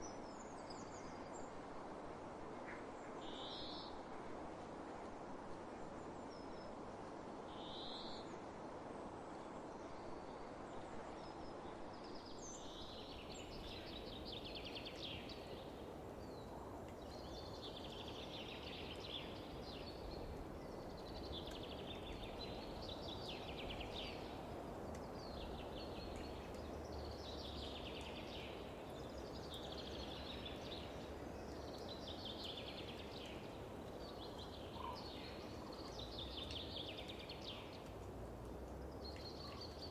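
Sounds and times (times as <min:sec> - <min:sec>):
wind hiss over fields: 0:00.0 - 0:39.9.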